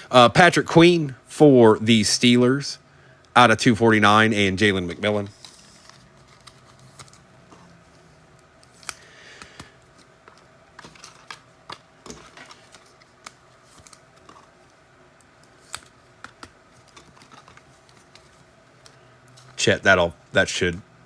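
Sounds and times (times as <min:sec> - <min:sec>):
cards clicking and tapping: 0:08.6 - 0:14.5, 0:15.2 - 0:19.6.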